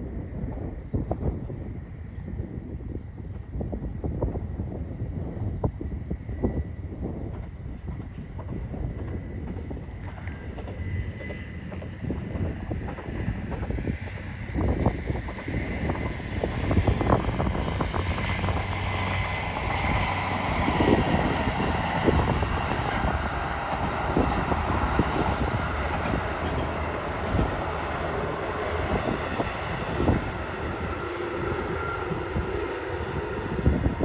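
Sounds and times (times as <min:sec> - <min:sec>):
train rumbling past: 0:00.0 - 0:34.0
wheel squeals: 0:15.6 - 0:18.6, 0:19.8 - 0:34.0.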